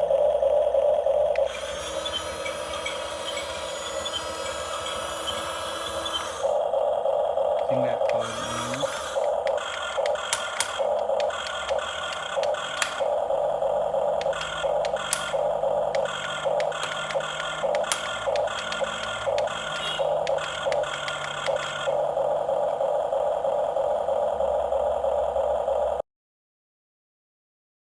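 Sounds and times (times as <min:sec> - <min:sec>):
toy bulldozer motor whine: 0:00.0 - 0:26.0
sharp clicks and rattles: 0:07.6 - 0:13.3, 0:14.1 - 0:22.2.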